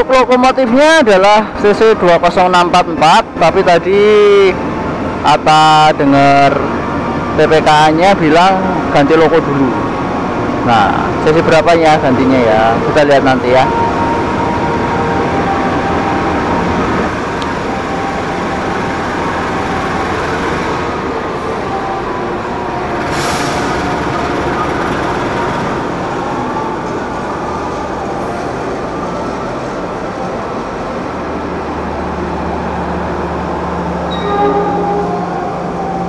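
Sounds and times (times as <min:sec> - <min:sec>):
diesel locomotive passing: 0:00.0 - 0:36.0
coaches rolling on rails: 0:09.8 - 0:36.0.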